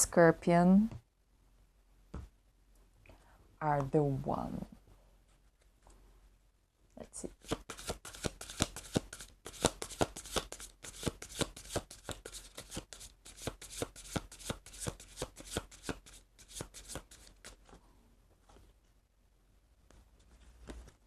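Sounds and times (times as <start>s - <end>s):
cards being shuffled: 7.3s - 17.7s.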